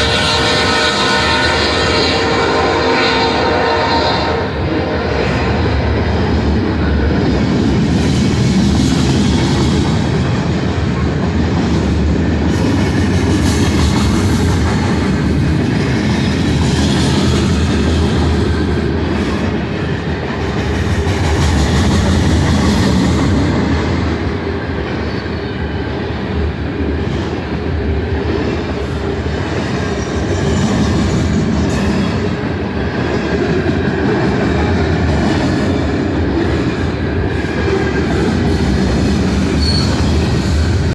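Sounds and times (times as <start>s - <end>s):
freight train wheels rumbling: 0.0s - 40.9s
wheel squeal: 39.6s - 40.4s.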